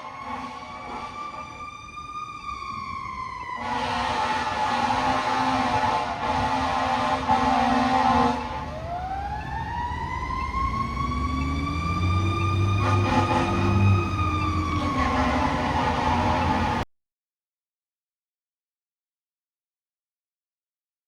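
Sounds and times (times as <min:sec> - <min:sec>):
fire engine siren: 0:00.0 - 0:16.9.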